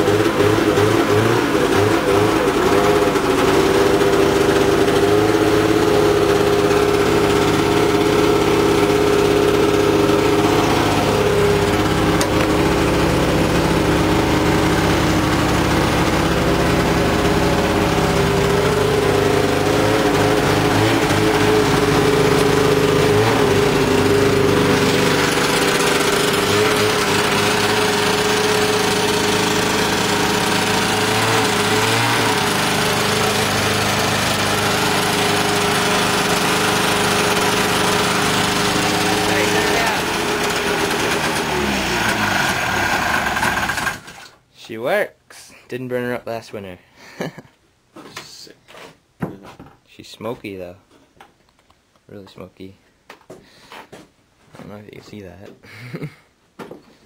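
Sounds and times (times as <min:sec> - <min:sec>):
snowmobile engine running: 0:00.0 - 0:44.2.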